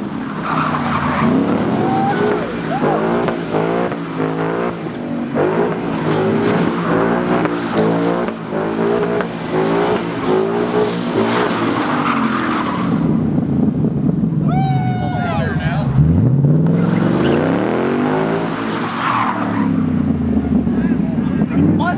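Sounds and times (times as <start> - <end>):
car engine revving: 0.0 - 21.9
tyres skidding hiss: 11.3 - 12.3.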